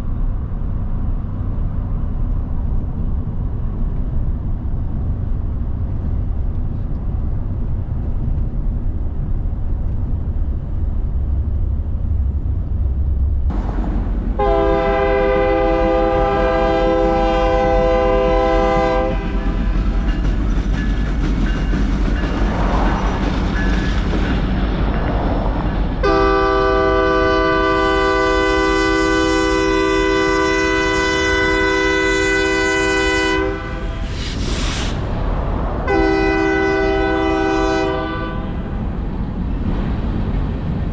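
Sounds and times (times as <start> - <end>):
low rumble of passing train: 0.0 - 40.9
locomotive air horn blasts: 14.4 - 19.6, 26.0 - 34.2, 35.9 - 38.6.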